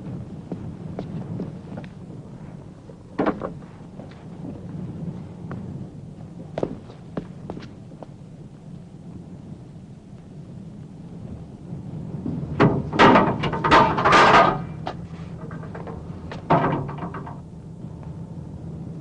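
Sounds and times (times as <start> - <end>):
low steady hum: 0.0 - 19.0
clattering knocks: 12.6 - 17.4.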